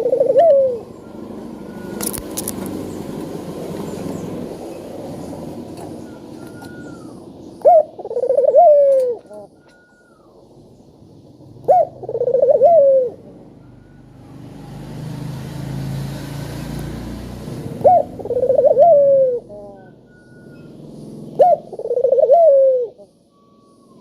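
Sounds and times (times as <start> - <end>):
dove cooing: 0.0 - 4.7, 5.6 - 10.4, 11.5 - 14.1, 17.5 - 24.0.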